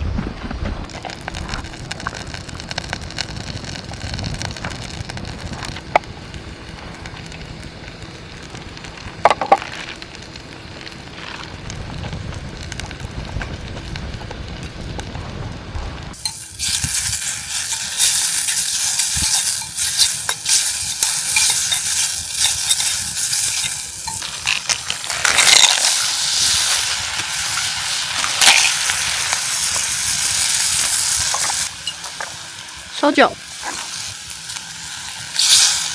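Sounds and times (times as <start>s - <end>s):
low rumble: 0.0s - 16.2s
food sizzling in a pan: 16.1s - 35.9s.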